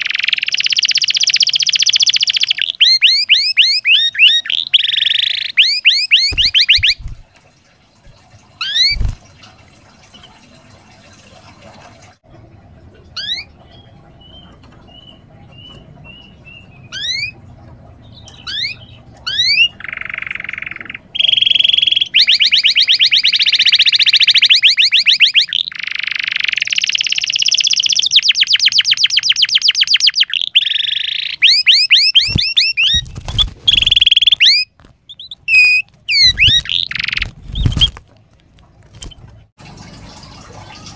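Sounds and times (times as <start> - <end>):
canary singing: 0.0 - 7.2, 8.6 - 9.2, 13.1 - 38.0.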